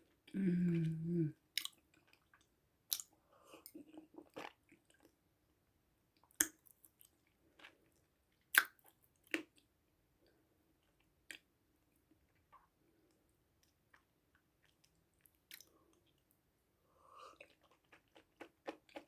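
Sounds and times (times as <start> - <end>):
chewing food: 1.6 - 5.2, 17.2 - 19.0.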